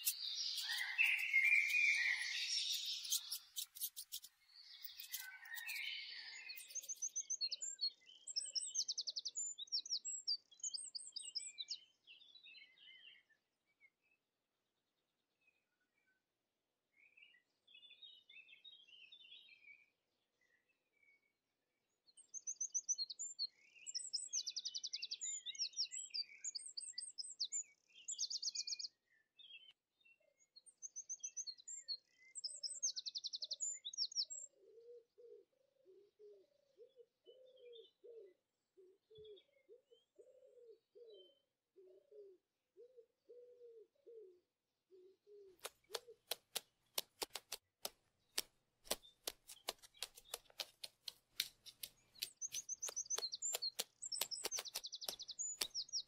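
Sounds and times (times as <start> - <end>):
lower bird call: 0.0 - 6.7
songbirds chirping and trilling: 0.0 - 56.0
woodpecker pecking at wood: 2.7 - 5.9, 45.6 - 56.0.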